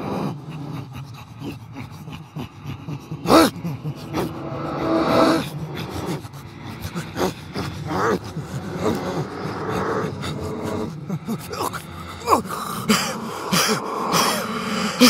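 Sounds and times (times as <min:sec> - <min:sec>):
man gasping: 0:03.2 - 0:15.0.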